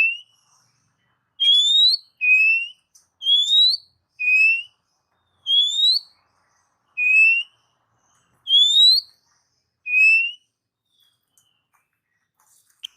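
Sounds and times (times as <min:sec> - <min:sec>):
bird singing whistled notes: 0:00.0 - 0:00.4, 0:01.4 - 0:06.3, 0:06.9 - 0:07.7, 0:08.4 - 0:09.2, 0:09.8 - 0:11.7.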